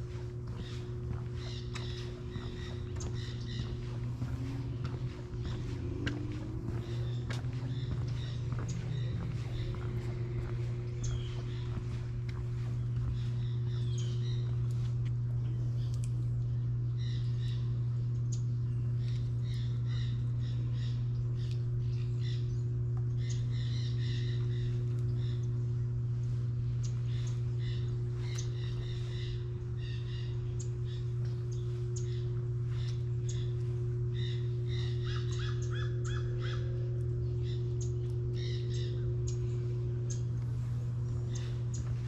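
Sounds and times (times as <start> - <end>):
crows cawing: 0.0 - 13.9, 32.1 - 39.2
steady low hum: 0.0 - 42.0.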